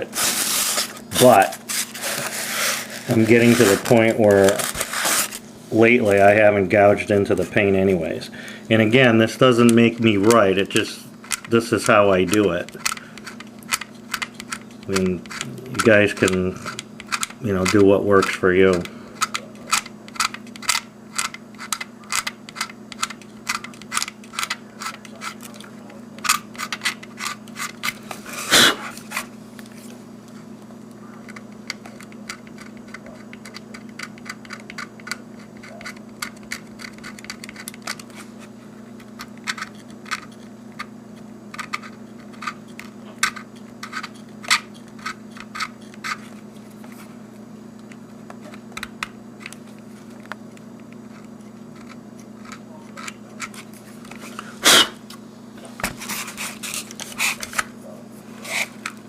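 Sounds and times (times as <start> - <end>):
knife scraping plastic: 0.0 - 5.4, 55.9 - 57.7, 58.4 - 58.9
steady low hum: 0.0 - 59.0.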